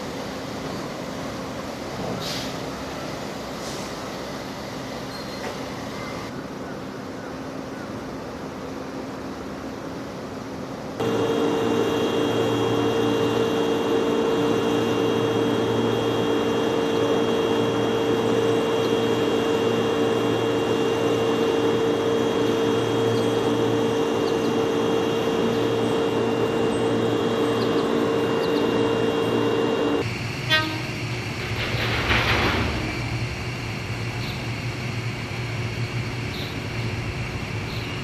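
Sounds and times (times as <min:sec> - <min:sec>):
locomotive mechanical hum: 0:00.0 - 0:38.0
held whine: 0:11.0 - 0:38.0
low pulsing drone: 0:11.0 - 0:38.0.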